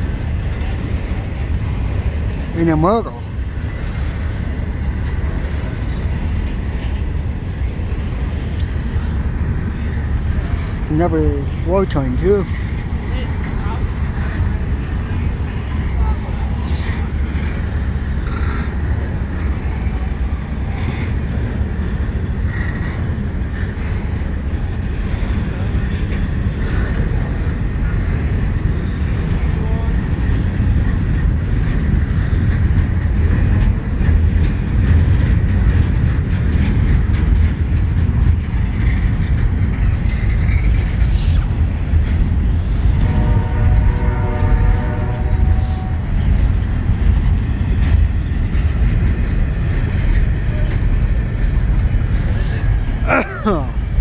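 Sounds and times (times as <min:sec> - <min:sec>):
freight train rumbling: 0:00.0 - 0:54.0
wheels clicking over rails: 0:00.0 - 0:54.0
train horn: 0:43.0 - 0:46.1.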